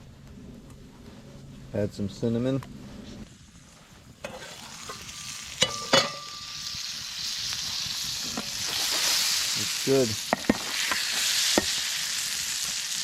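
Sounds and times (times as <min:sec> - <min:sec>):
bread sizzling in a pan: 0:03.3 - 0:13.0
metal clanks: 0:05.6 - 0:06.5.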